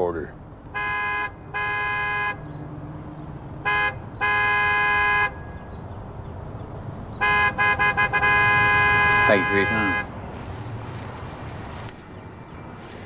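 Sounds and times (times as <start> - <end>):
horn blasts: 0.8 - 2.4, 3.6 - 5.4, 7.2 - 10.2
low engine hum: 2.4 - 4.2, 5.4 - 13.0.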